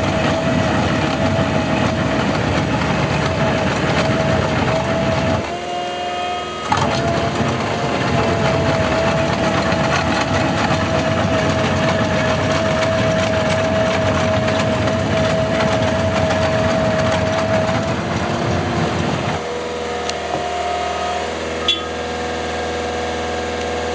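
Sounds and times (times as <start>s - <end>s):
asphalt planer grinding: 0.0s - 23.9s
engine running evenly: 0.0s - 23.9s.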